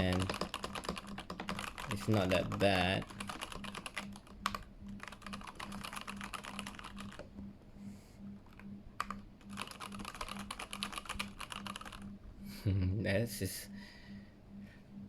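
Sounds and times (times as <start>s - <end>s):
mechanical keyboard typing: 0.0s - 7.2s, 9.0s - 12.0s.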